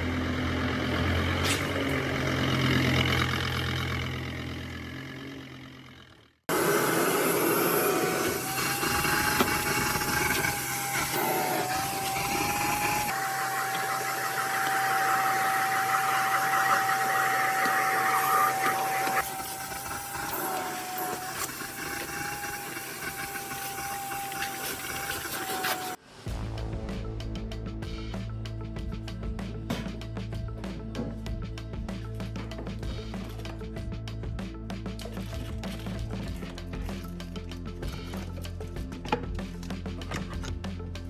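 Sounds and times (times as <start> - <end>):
vacuum cleaner running: 6.5 - 26.0.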